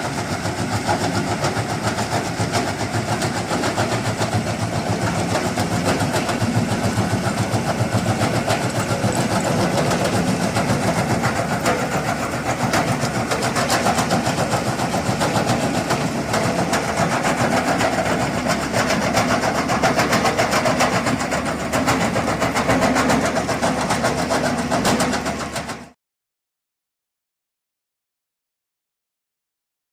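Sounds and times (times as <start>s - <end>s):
diesel engine running under load: 0.0s - 26.0s
rubble rattling in bucket: 2.9s - 23.2s.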